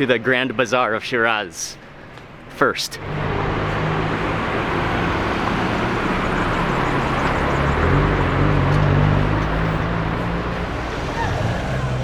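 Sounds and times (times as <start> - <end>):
cars passing: 2.1 - 12.0
vehicle engine hum: 3.0 - 12.0.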